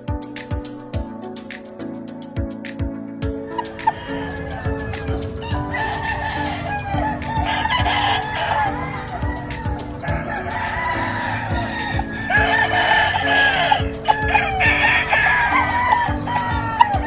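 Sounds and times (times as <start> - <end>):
background music with a beat: 0.0 - 17.0
roosters crowing: 3.4 - 17.0
chickens clucking: 3.5 - 17.0.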